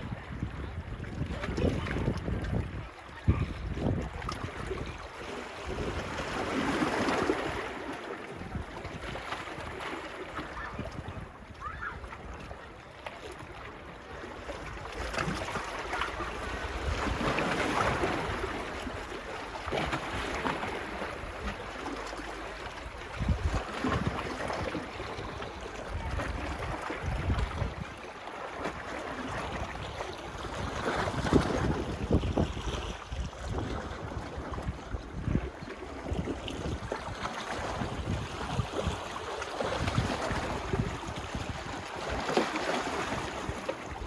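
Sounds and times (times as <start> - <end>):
wind buffeting microphone: 0.0 - 7.7, 14.6 - 21.7, 22.8 - 28.0, 28.7 - 44.0
small waves washing on beach: 0.0 - 44.0.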